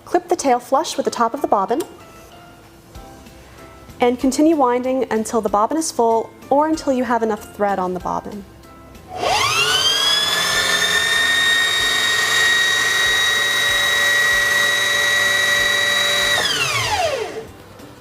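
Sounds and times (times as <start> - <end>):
sewing machine motor whine: 9.1 - 17.5.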